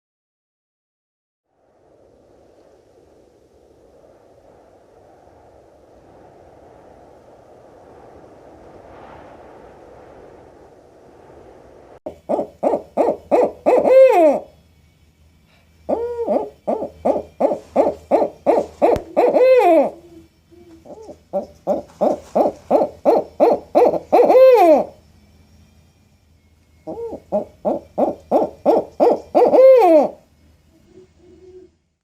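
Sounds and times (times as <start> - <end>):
owl hooting: 12.1 - 14.6, 15.8 - 25.0, 26.8 - 32.0.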